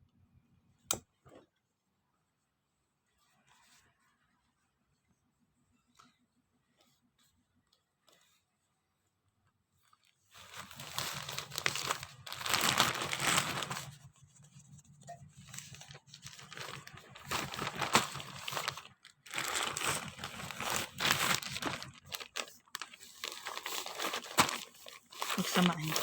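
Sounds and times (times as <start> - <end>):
packaging crinkling and tearing: 10.4 - 14.1, 15.4 - 26.0.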